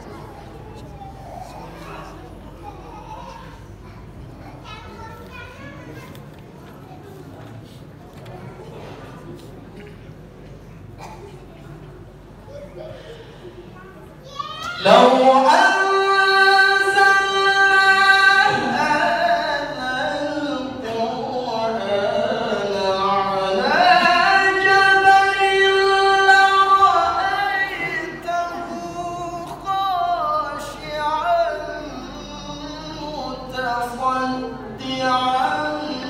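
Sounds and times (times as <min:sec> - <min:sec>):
man chanting melodically: 0:14.8 - 0:36.0.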